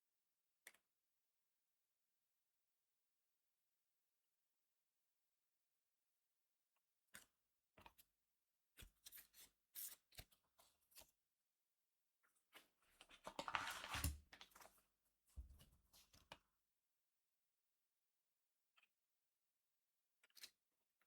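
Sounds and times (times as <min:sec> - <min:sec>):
trading cards rustling and clicking: 0:13.2 - 0:14.7.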